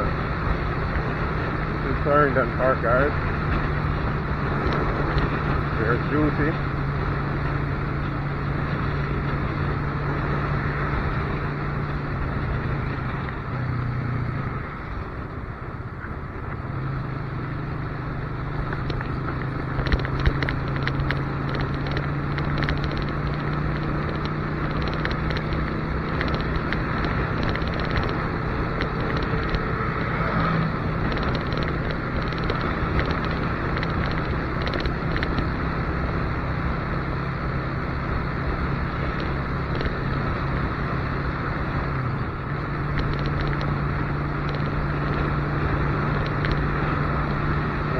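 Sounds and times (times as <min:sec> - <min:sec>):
motorcycle engine running: 0:00.0 - 0:47.9
wind on microphone: 0:18.7 - 0:37.0.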